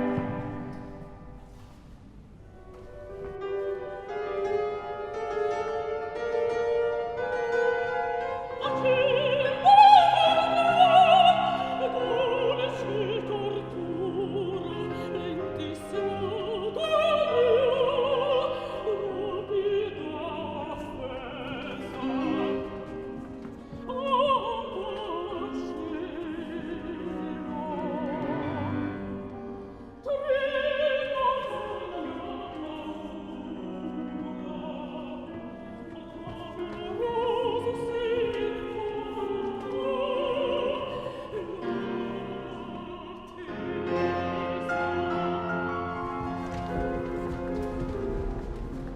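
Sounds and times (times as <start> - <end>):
operatic singing: 8.6 - 23.0, 23.8 - 29.4, 30.0 - 48.9.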